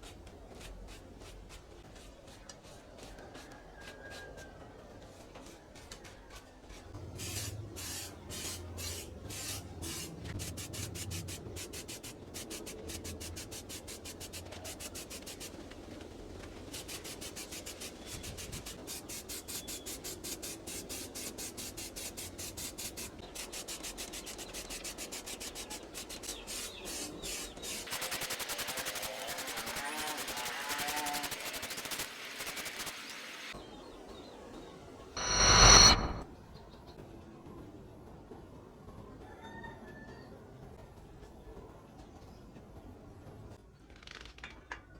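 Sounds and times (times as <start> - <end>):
hand tool scraping strokes: 35.2 - 36.2.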